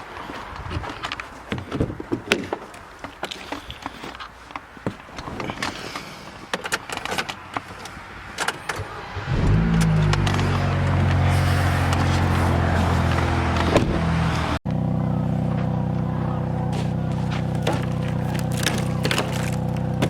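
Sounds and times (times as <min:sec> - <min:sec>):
car engine starting and running: 0:08.7 - 0:20.0.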